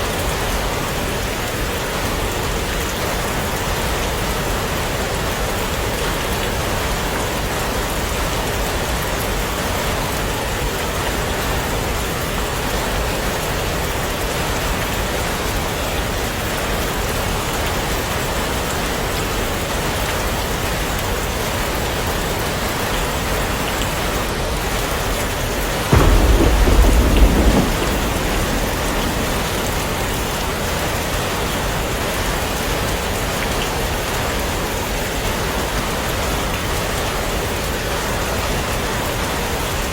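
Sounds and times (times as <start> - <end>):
heavy rain falling: 0.0 - 39.9
thunder clap: 25.8 - 32.4.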